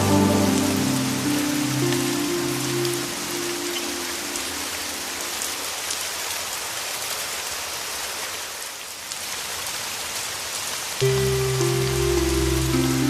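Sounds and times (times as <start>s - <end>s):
low held musical tone: 0.0s - 4.8s, 11.0s - 13.0s
heavy rain falling: 0.0s - 13.0s.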